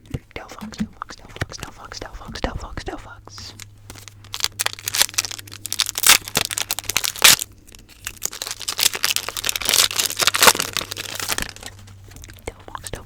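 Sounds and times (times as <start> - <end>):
plastic packaging crinkling: 3.4 - 12.4.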